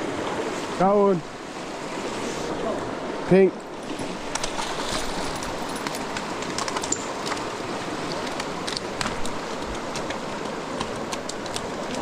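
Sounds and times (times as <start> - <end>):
creek water rushing: 0.0 - 12.0
small splashes and clicks: 3.8 - 12.0.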